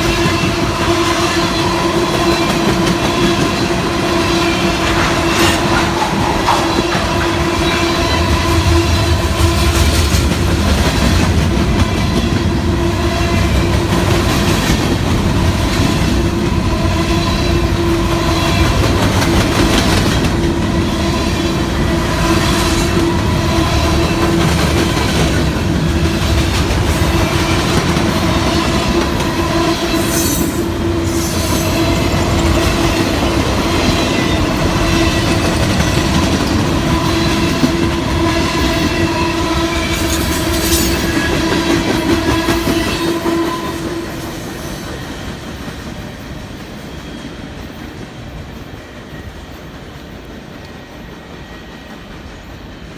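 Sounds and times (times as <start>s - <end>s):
freight train rumbling past: 0.0s - 52.9s
clacking over rail joints: 4.4s - 8.5s.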